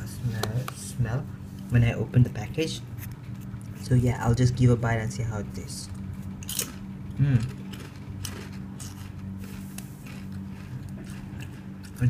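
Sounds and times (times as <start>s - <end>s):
crunchy potato crisp chewing: 5.8s - 12.0s.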